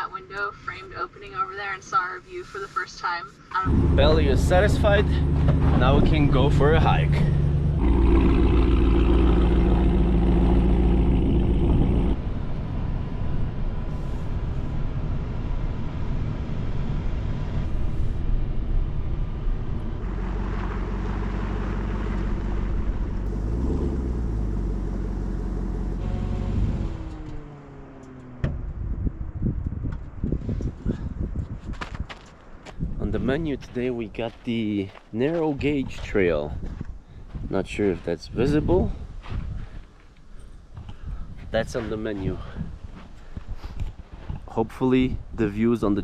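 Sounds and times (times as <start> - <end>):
vehicle engine running: 3.6 - 29.4.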